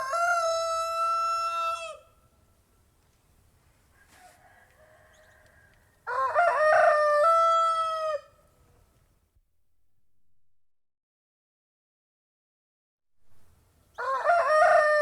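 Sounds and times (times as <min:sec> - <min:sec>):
faint rooster call: 0:00.0 - 0:02.2, 0:03.7 - 0:09.0, 0:13.9 - 0:15.0
rooster crowing: 0:00.0 - 0:02.2, 0:03.9 - 0:08.4, 0:14.0 - 0:15.0.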